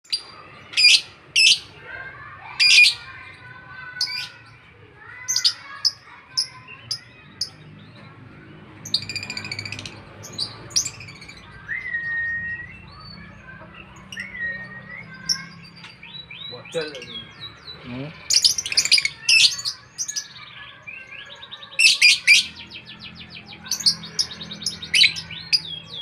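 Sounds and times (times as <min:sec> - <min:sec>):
lovebird screeching: 0:21.8 - 0:22.5.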